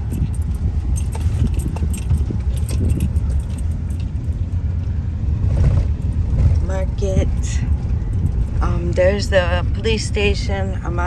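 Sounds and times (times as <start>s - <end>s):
short clicks and rattles: 0.0s - 4.6s
car engine and road rumble: 0.0s - 11.0s.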